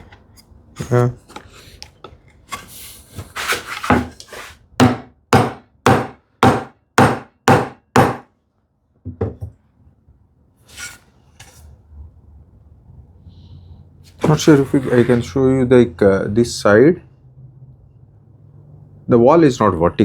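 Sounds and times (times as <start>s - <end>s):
hammer knocking on wood: 4.8s - 8.2s, 9.1s - 9.6s.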